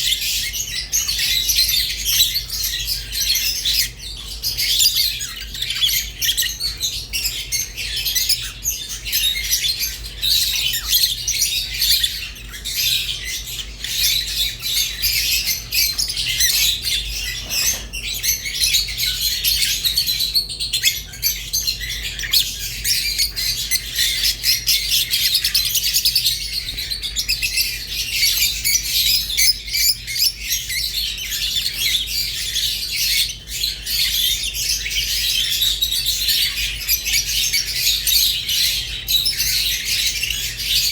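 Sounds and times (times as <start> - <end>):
lovebirds chirping and chattering: 0.0 - 40.9.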